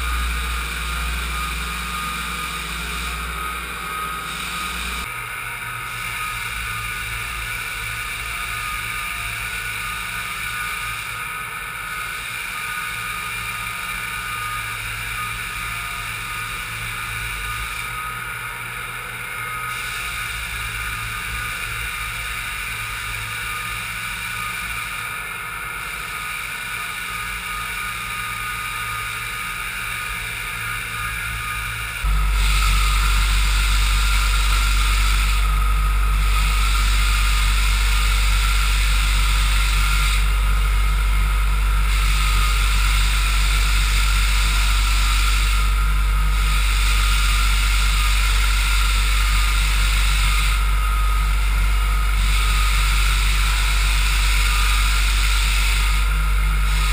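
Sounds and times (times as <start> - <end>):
deep hum: 0.0 - 5.3, 30.8 - 56.9
floor sander running: 0.0 - 56.9.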